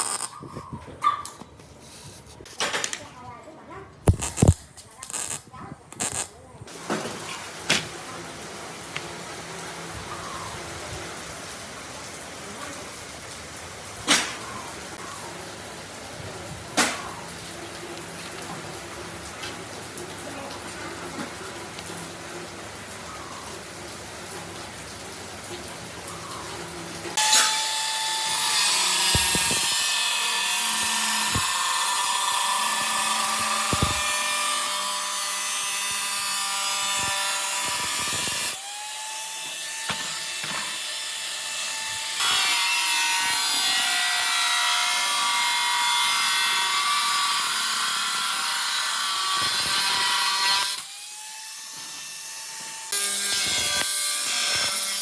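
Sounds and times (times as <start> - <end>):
power tool grinding metal: 0.0 - 0.4, 4.1 - 6.3, 27.1 - 55.0.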